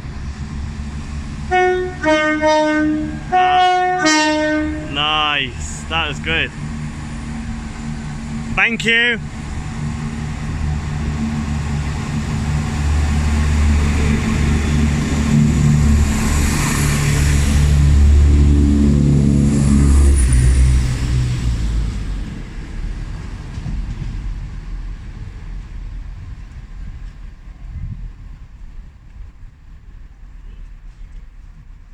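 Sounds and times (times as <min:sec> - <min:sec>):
diesel train engines pulling out: 0:00.0 - 0:31.9.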